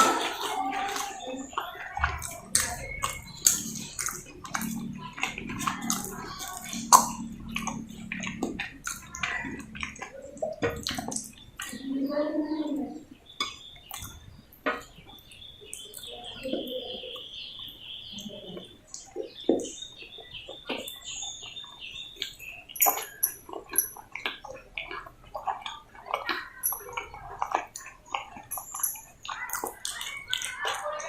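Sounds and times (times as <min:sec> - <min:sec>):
close-up chewing and mouth sounds: 0:00.0 - 0:31.0
high thin chirping tone: 0:22.4 - 0:24.0.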